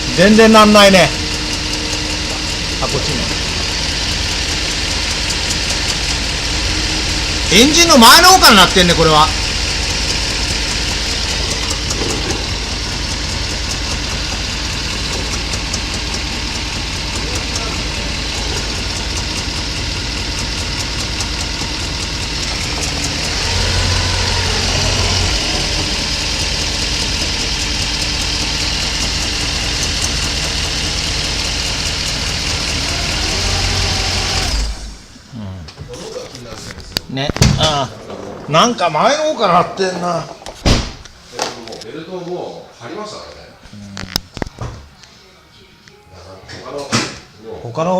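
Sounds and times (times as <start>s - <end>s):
fast fine ticking: 0.0s - 34.8s
car engine idling: 0.0s - 39.4s.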